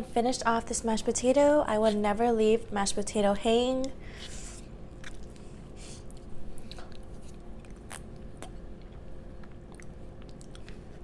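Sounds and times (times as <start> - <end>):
mouth chewing and smacking: 3.8 - 11.0.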